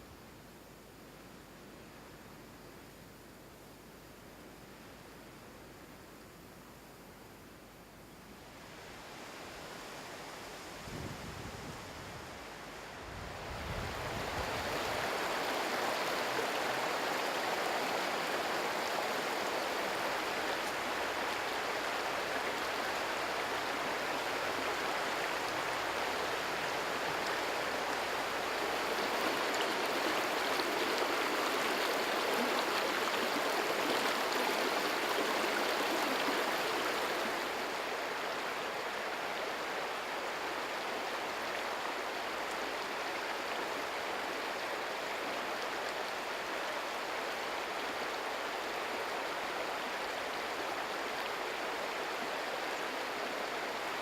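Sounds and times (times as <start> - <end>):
river water rushing over rapids: 11.9 - 54.0.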